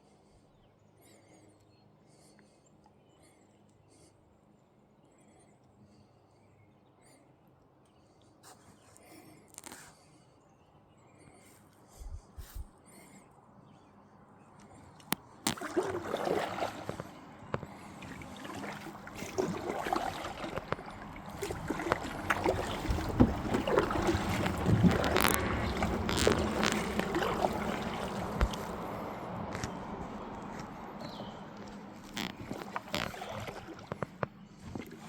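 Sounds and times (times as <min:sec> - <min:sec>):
paddle splashing water: 0:15.1 - 0:35.0
paddle knocking against hull: 0:15.5 - 0:35.0.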